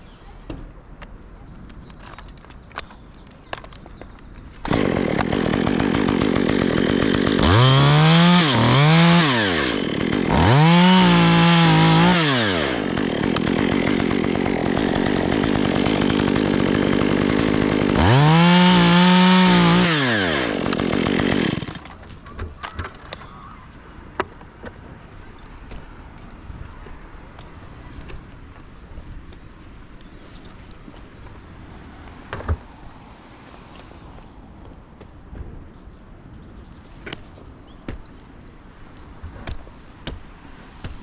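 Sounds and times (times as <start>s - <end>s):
chainsaw engine idling and revving: 4.6s - 22.1s.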